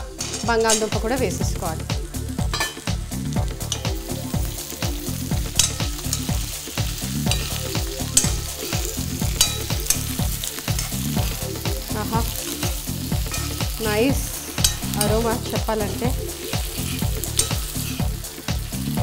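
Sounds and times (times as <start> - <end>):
potatoes sizzling in hot oil: 0.0 - 19.0
metal spoon scraping a pan: 0.1 - 1.3, 2.4 - 3.0, 3.6 - 4.6, 5.2 - 13.9, 14.5 - 18.4.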